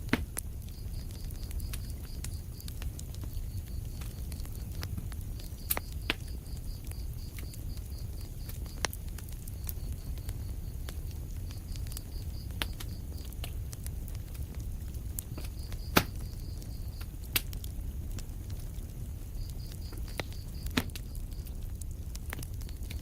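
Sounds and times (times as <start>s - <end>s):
fire crackles and pops: 0.0s - 23.0s
fire rumbling in a fireplace: 0.0s - 23.0s.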